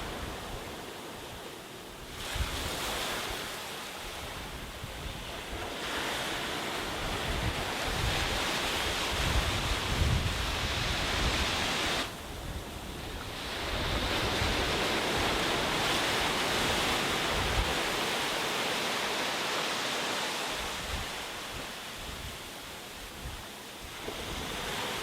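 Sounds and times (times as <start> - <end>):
sea waves washing onto beach: 0.0 - 25.0
wind buffeting microphone: 4.1 - 18.6.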